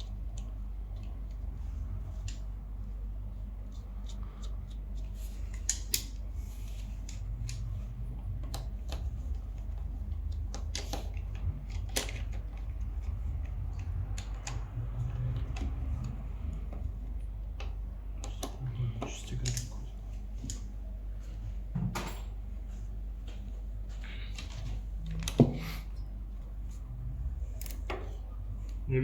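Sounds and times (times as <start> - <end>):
low steady hum: 0.0 - 29.0
hand tools clicking and tapping: 8.3 - 16.9.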